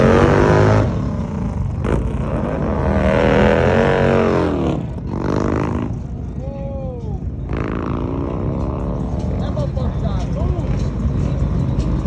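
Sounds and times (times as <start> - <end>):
motorcycle passing by: 0.0 - 6.3
motorcycle engines revving: 0.0 - 12.0.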